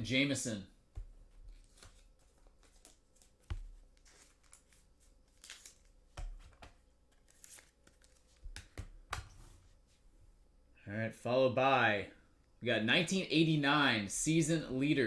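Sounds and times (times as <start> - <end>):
trading cards rustling and sliding: 1.0 - 9.7.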